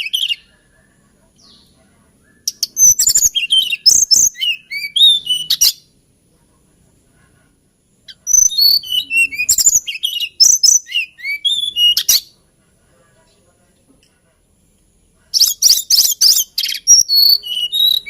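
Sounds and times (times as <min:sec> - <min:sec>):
bird singing warbling song: 0:00.0 - 0:06.0, 0:07.9 - 0:12.4, 0:15.3 - 0:18.0.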